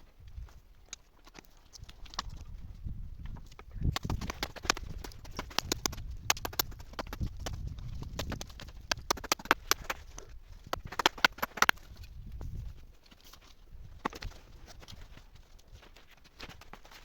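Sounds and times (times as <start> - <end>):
sharp knocks and clicks: 3.9 - 11.9.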